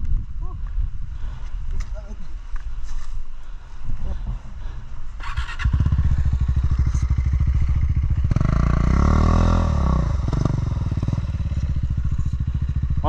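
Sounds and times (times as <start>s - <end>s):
motorcycle engine running and revving: 5.2s - 13.0s.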